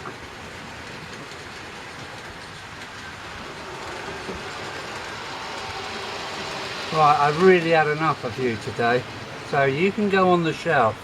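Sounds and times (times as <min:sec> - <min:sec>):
model train motor rumble: 0:00.0 - 0:11.0
wheels clattering over track: 0:00.0 - 0:11.0.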